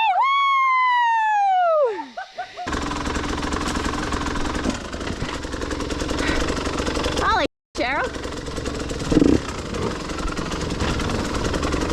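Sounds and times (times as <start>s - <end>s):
dirt bike engine rattling: 2.7s - 11.9s.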